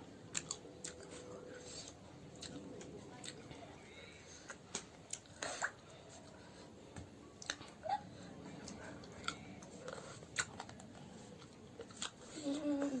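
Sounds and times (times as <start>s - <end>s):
person chewing and biting: 9.0s - 12.2s.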